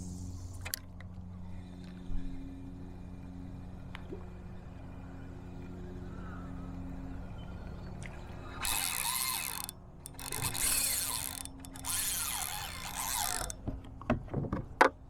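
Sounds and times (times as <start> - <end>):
fishing reel drag clicking: 0.0 - 1.1, 8.5 - 13.6.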